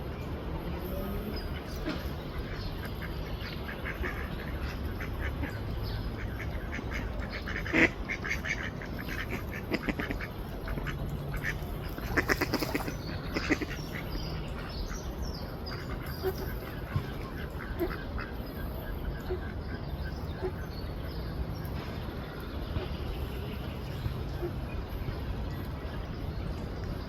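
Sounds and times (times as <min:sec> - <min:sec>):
duck quacking: 0:06.3 - 0:14.0, 0:16.2 - 0:18.2.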